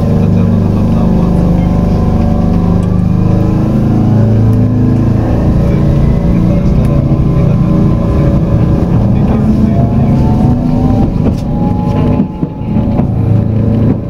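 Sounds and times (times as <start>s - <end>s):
tram rolling on track: 0.0s - 14.0s.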